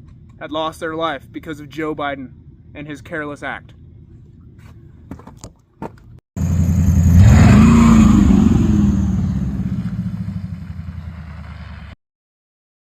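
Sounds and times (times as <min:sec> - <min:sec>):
engine revving: 0:06.4 - 0:12.0.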